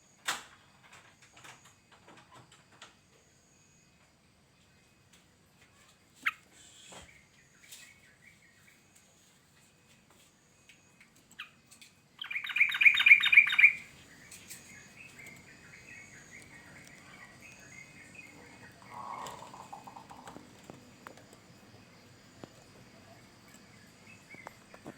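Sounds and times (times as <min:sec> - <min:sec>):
harsh bird call: 0:12.2 - 0:13.9
bird chattering: 0:12.2 - 0:20.3
bird bubbling song: 0:12.2 - 0:20.4.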